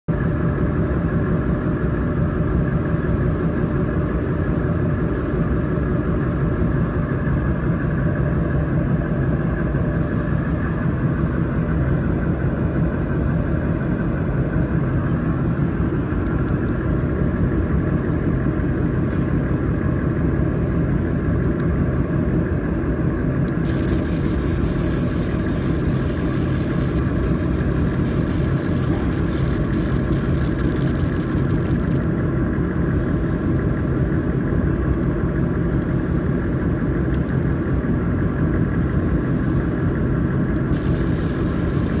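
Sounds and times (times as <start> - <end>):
laser engraver humming: 23.6 - 32.0, 40.7 - 42.0.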